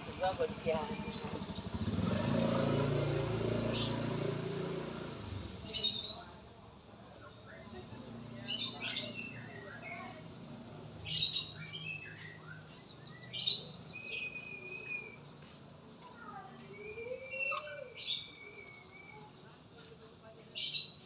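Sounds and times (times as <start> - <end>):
songbirds chirping and trilling: 0.0 - 21.0.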